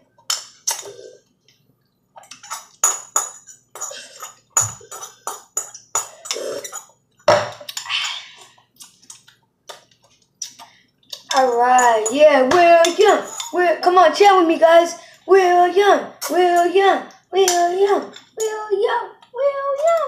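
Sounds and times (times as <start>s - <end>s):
utensils clinking against a dish: 2.2s - 14.0s, 16.2s - 18.7s.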